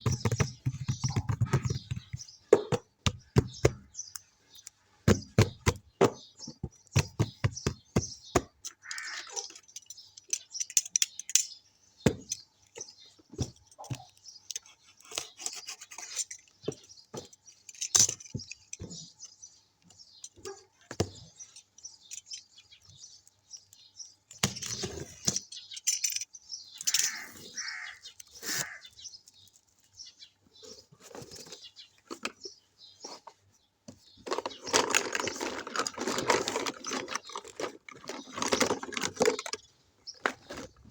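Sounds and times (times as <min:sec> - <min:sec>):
plastic toy pieces clicking: 0:08.7 - 0:11.6, 0:25.2 - 0:27.2, 0:34.3 - 0:39.7
packaging rustling: 0:34.3 - 0:39.6.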